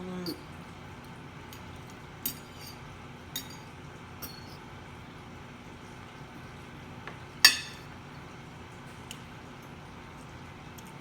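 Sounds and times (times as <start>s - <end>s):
tableware clinking: 1.5s - 2.8s, 3.4s - 4.6s, 7.4s - 7.9s.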